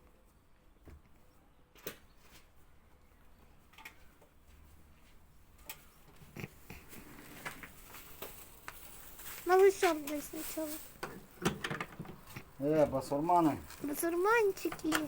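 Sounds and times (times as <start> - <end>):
small animals clicking and rustling: 5.5 - 15.0.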